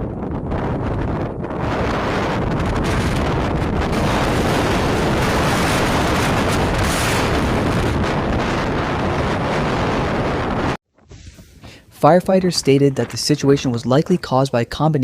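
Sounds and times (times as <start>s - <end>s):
strong wind buffeting microphone: 0.0s - 11.5s.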